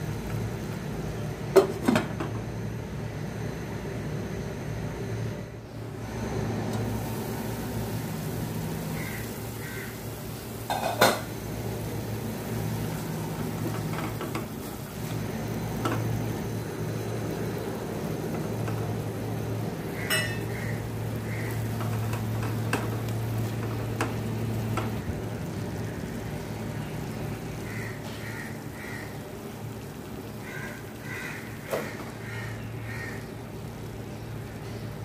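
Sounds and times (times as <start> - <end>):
masala frying in a pot: 0.0 - 35.0
steady low hum: 0.0 - 35.0.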